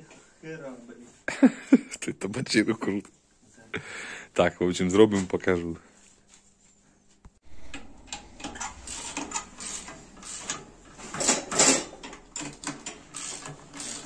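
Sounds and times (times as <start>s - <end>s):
tools and metal parts rattling: 8.1s - 14.0s.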